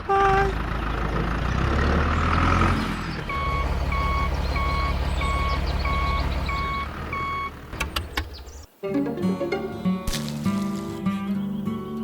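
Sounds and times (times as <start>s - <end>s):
engine droning: 0.0s - 8.4s
vehicle reversing alarm beeping: 3.3s - 7.7s.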